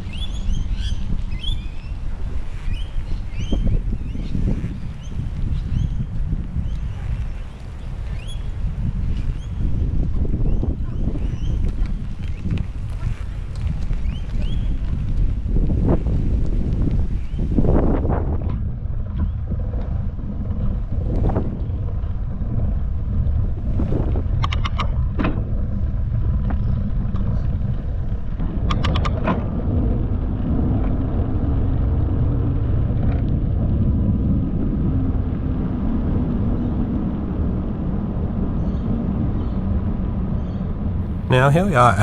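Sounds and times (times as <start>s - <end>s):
wind buffeting microphone: 0.0s - 19.8s.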